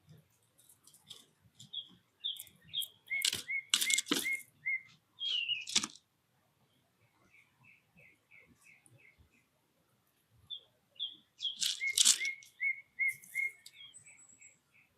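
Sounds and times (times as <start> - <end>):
small birds chirping: 0.6 - 6.0, 6.7 - 9.6, 10.4 - 14.9
sharp rustling knocks: 3.2 - 4.4, 5.6 - 6.0.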